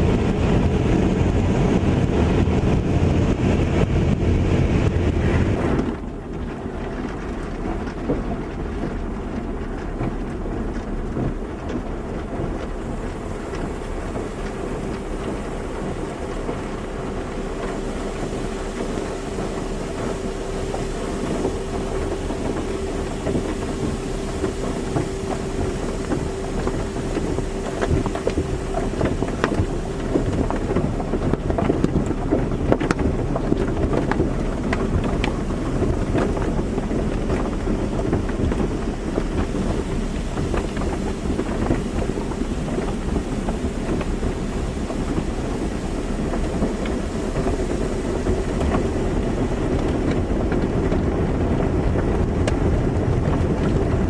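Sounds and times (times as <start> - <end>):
car wash water spray: 0.0 - 54.0
water spattering: 5.5 - 54.0
machine whine: 9.4 - 54.0.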